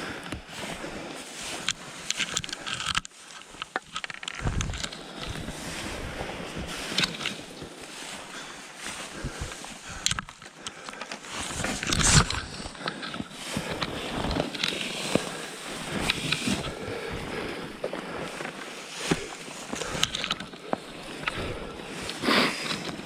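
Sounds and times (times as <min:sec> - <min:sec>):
thin ice cracking and crunching: 0:01.3 - 0:05.4, 0:09.8 - 0:16.8.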